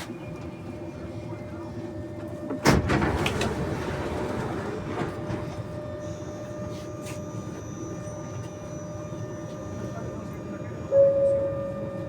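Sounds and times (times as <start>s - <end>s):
train running hum: 0.0s - 12.0s
faint high whine: 6.0s - 12.0s.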